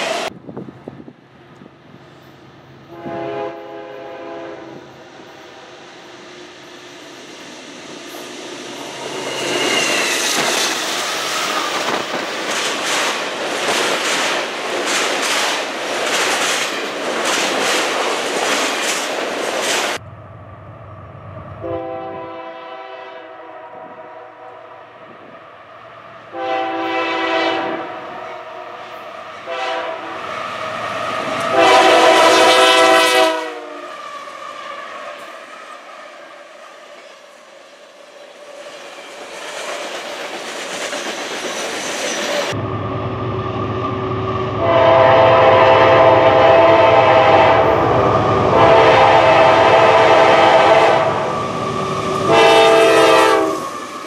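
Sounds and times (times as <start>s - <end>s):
train horn blasts: 2.9s - 5.6s, 21.6s - 24.9s, 26.3s - 28.8s, 29.4s - 30.3s, 31.3s - 34.0s, 44.4s - 51.4s, 52.1s - 53.8s.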